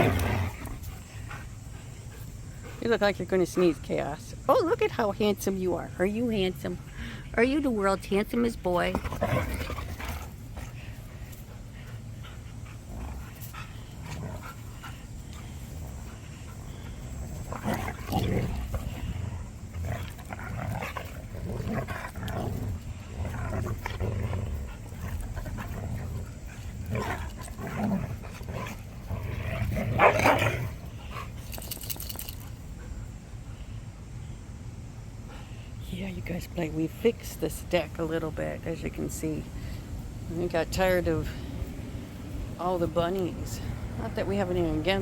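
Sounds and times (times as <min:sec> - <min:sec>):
dogs growling and huffing: 0:00.0 - 0:05.0, 0:08.6 - 0:33.6.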